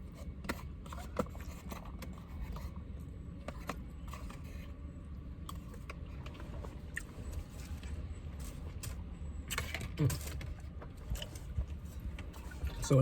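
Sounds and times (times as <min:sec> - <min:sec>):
chewing and food handling: 0:00.0 - 0:13.0
low steady hum: 0:00.0 - 0:13.0.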